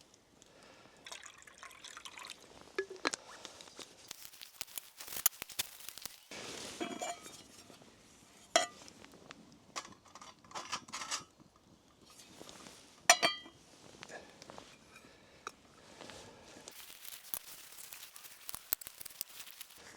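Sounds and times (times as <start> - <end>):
metal cookware clinking: 6.8 - 7.7, 8.6 - 8.8, 13.1 - 13.6.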